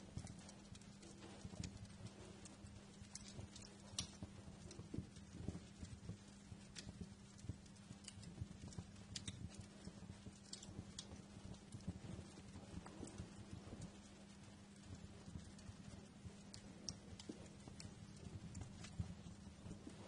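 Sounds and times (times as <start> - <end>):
low steady hum: 0.0 - 20.0
wood fire crackling: 0.0 - 20.0.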